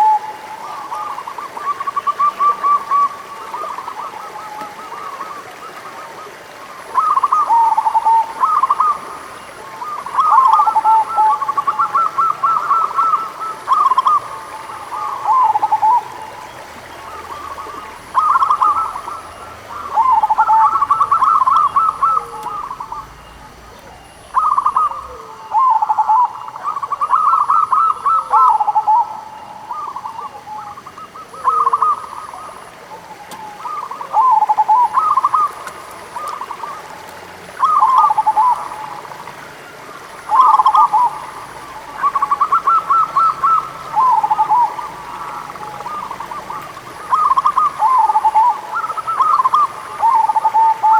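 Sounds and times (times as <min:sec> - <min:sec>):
dove cooing: 0:00.0 - 0:50.9.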